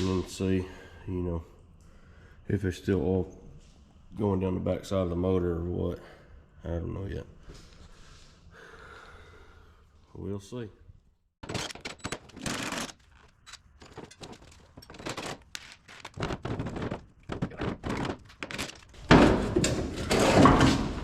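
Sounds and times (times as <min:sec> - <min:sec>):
handling scrapes rustles and knocks: 0:11.8 - 0:21.0.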